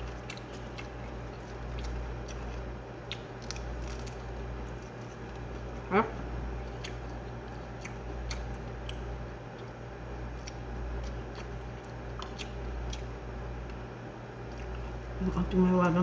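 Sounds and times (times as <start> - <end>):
person chewing food: 0.0 - 15.2
steady low hum: 0.0 - 16.0.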